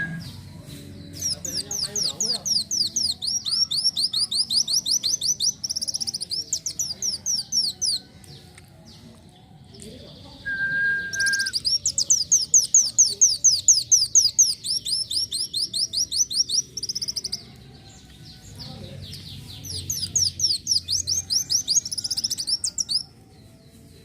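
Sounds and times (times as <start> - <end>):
bird singing high sweeping notes: 0.0 - 0.5, 1.1 - 8.0.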